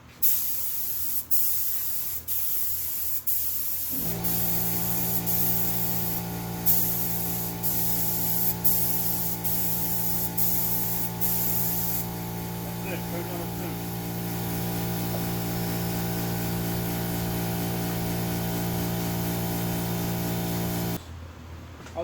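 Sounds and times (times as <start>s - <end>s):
spray gun hissing: 0.2s - 21.0s
steady hum: 3.9s - 21.0s.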